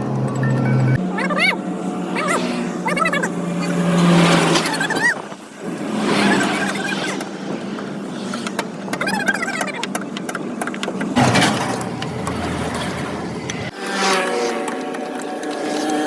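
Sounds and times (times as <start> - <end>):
vehicle engine noise: 0.0 - 15.9.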